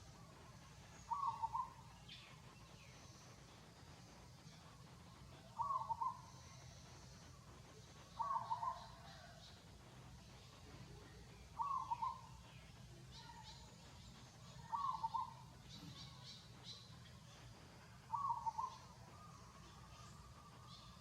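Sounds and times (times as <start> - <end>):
faint high chirps: 0.0 - 21.0.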